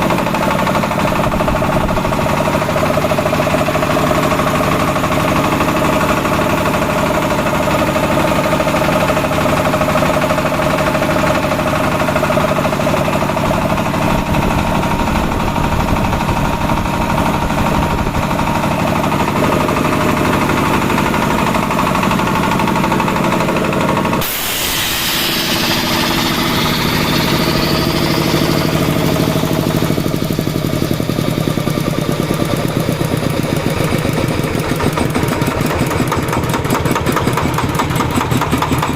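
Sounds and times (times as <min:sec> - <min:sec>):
air compressor engine running: 0:00.0 - 0:38.9
loud hiss of air: 0:24.2 - 0:29.1.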